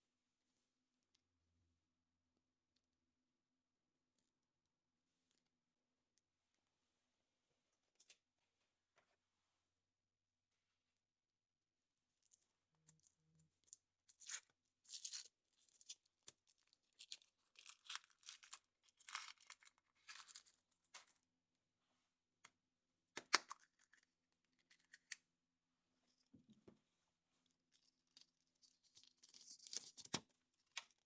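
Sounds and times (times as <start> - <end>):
foil wrapper crinkling and tearing: 14.2 - 20.6.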